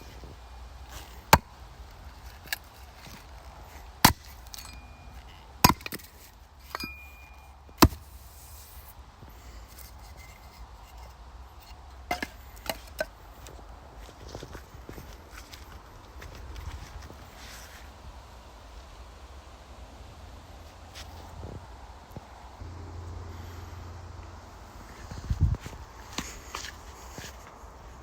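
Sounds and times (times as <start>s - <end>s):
axe chopping wooden boards: 4.0s - 4.9s, 5.6s - 6.2s, 7.7s - 8.1s, 12.1s - 13.1s.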